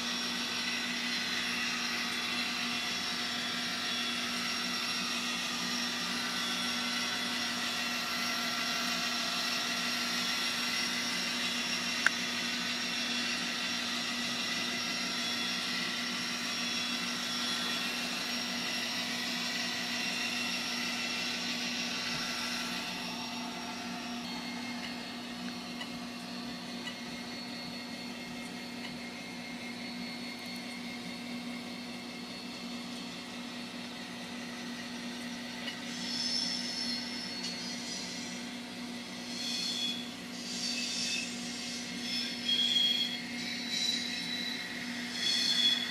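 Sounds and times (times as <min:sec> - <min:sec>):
model locomotive engine drone: 0:00.0 - 0:45.9.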